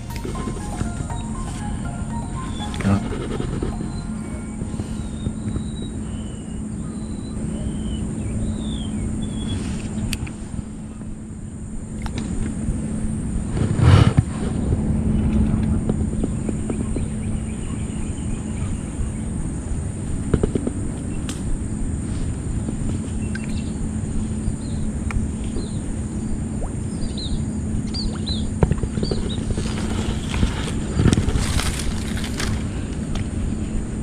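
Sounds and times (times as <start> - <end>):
steady high-pitched drone: 0.0 - 6.6.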